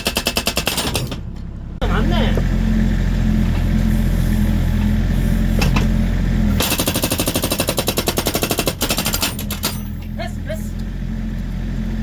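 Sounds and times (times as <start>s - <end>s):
excavator engine running: 0.0s - 12.0s
hydraulic breaker hammering: 6.6s - 10.2s.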